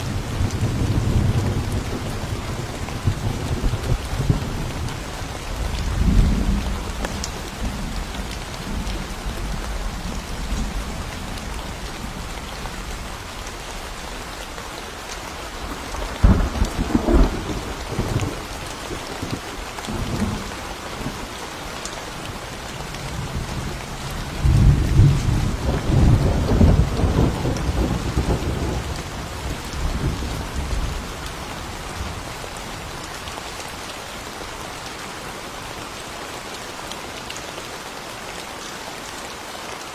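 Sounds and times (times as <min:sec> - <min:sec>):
thunder rumbling: 0:00.0 - 0:13.9, 0:15.6 - 0:21.3, 0:22.7 - 0:31.2
steady rain: 0:00.0 - 0:39.9.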